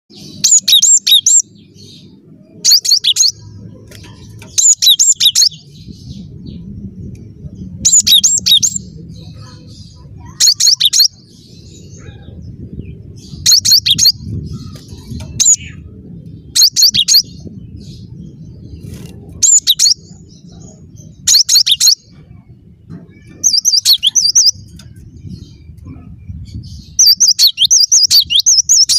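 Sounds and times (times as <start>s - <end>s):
bird singing high whistled notes: 16.5s - 17.6s, 26.8s - 28.9s.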